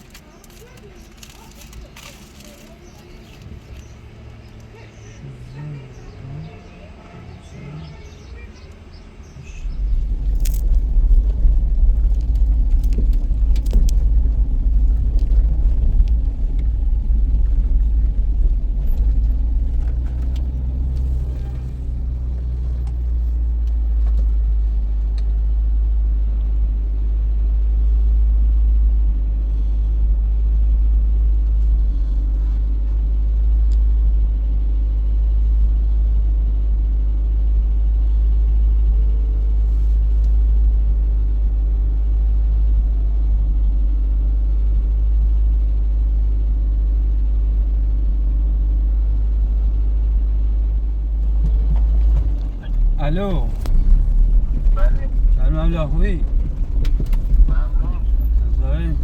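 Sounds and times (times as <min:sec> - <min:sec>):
clicks and rattles: 0:00.0 - 0:03.9, 0:10.0 - 0:21.8, 0:51.1 - 0:59.0
vehicle driving rumble: 0:00.0 - 0:59.0.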